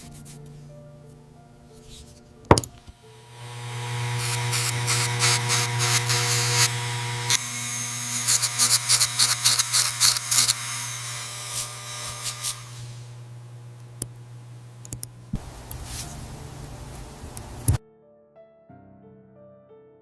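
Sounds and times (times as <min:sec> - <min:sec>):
low motor hum: 0:03.1 - 0:08.3, 0:10.6 - 0:17.8
hissing spray bursts: 0:11.5 - 0:13.2.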